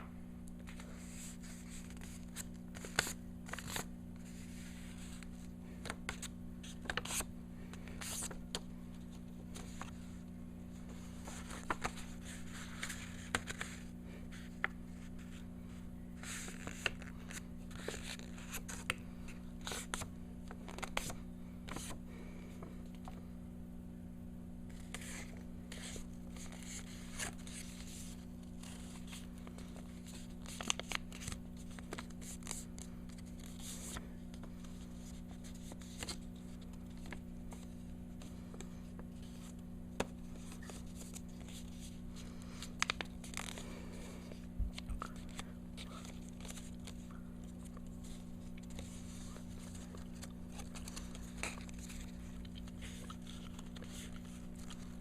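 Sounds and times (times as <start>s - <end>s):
steady low hum: 0.0s - 55.0s
paper being folded and creased: 0.6s - 15.4s, 16.2s - 19.0s, 24.7s - 42.0s, 42.6s - 43.7s, 44.7s - 55.0s.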